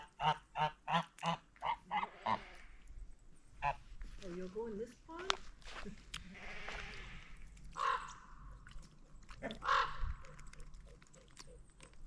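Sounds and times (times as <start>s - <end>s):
geese honking: 7.8s - 8.2s, 9.6s - 10.0s.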